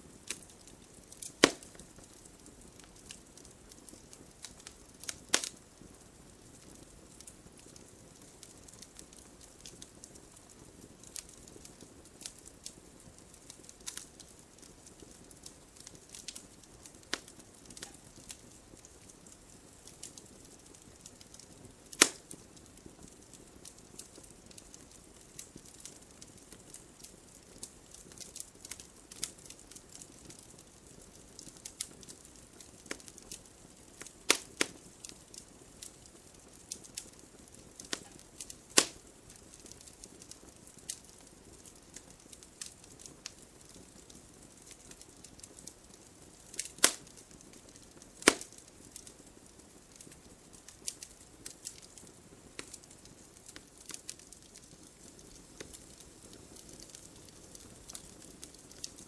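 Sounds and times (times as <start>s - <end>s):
loud pops of fire: 0.0s - 59.0s
fire hissing: 0.1s - 5.6s, 14.8s - 26.0s, 36.7s - 41.2s, 48.1s - 48.6s
logs crackling and snapping: 0.2s - 5.8s, 6.4s - 59.0s.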